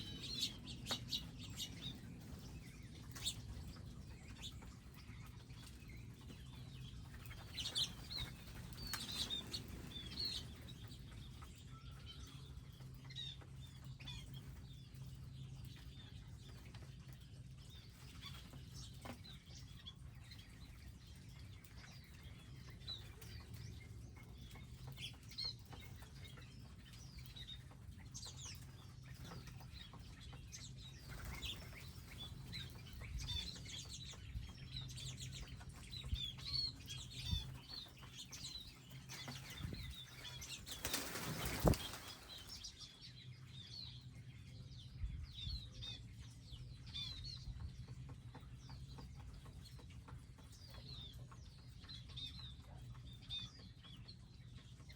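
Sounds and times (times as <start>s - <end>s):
small birds chirping: 0.0s - 54.9s
wings fluttering: 7.1s - 10.8s, 31.0s - 33.5s, 37.2s - 42.8s.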